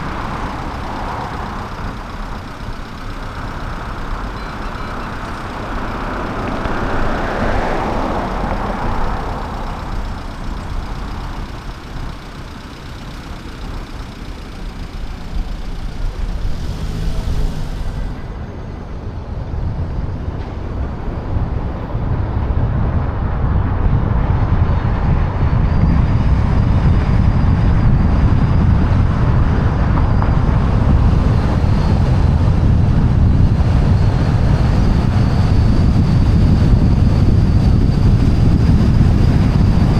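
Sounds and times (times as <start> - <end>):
road and traffic noise: 0.0 - 39.9
wind rushing over microphone: 16.4 - 39.9
hiss: 16.5 - 18.2.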